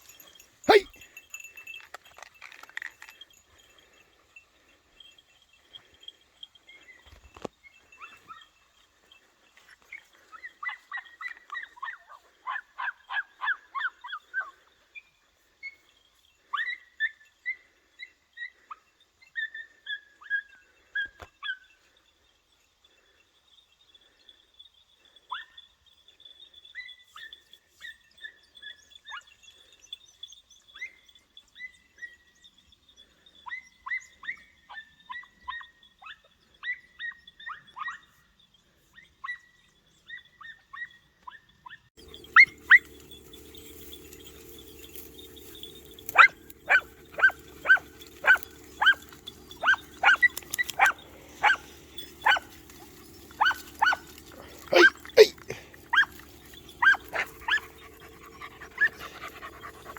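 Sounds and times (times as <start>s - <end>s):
puppies yelping barks: 42.0s - 59.9s.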